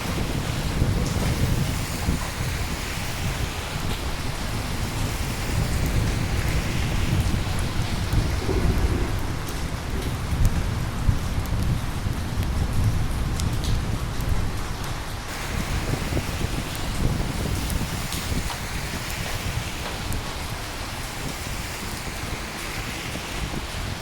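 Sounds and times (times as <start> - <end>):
rolling thunder: 0.0 - 14.6
steady rain: 0.0 - 24.0.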